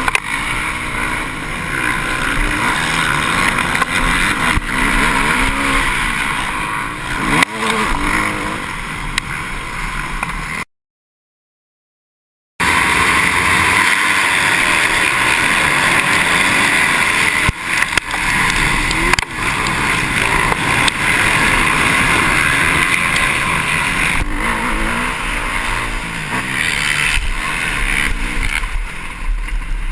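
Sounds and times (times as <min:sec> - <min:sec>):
motocross bike engines revving: 0:00.0 - 0:10.6, 0:12.6 - 0:29.9.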